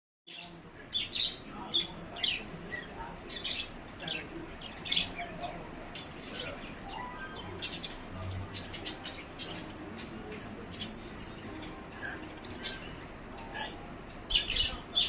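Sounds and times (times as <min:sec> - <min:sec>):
small birds chirping: 0:00.3 - 0:15.0.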